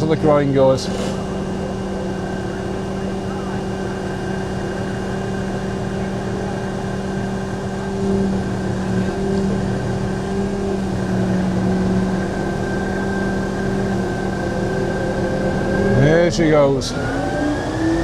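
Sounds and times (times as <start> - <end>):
diesel engine humming: 0.0 - 18.0.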